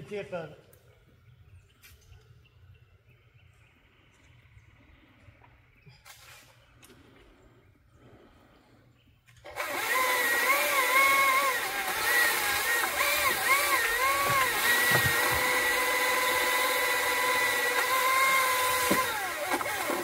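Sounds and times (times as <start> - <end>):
chainsaw cutting tree limb: 9.4 - 20.0.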